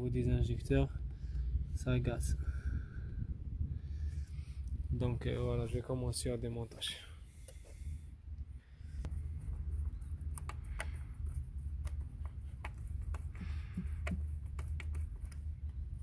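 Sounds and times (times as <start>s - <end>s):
low rumble: 0.3s - 5.9s.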